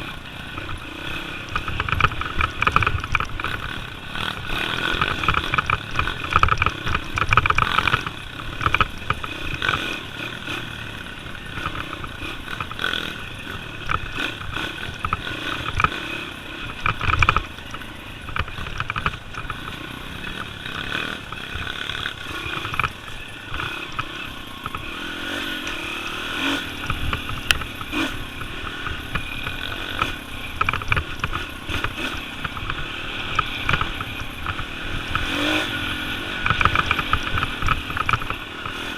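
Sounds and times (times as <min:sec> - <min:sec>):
knocks and clatter from rough ground: 0:00.0 - 0:10.6, 0:13.7 - 0:24.9, 0:26.4 - 0:38.9
motorbike engine revving: 0:00.0 - 0:38.9.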